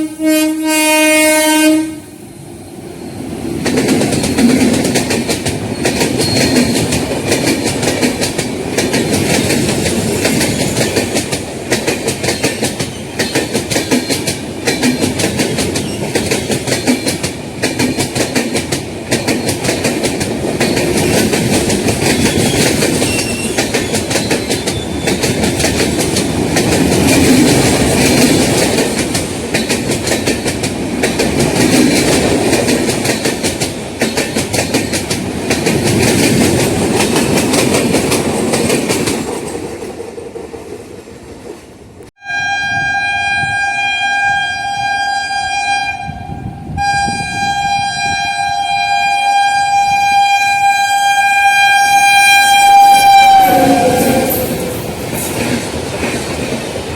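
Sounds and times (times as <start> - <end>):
train wheels clattering on rail joints: 3.6 - 41.8, 53.4 - 56.9.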